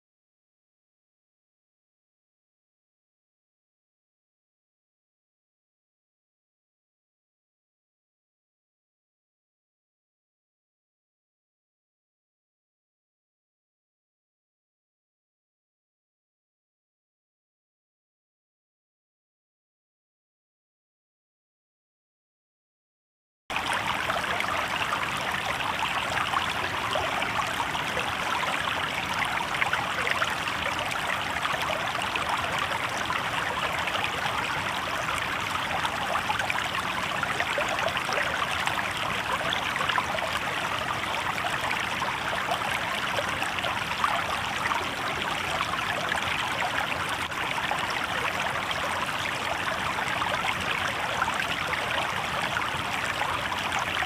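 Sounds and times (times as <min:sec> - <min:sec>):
river water babbling over rocks: 0:23.5 - 0:54.0.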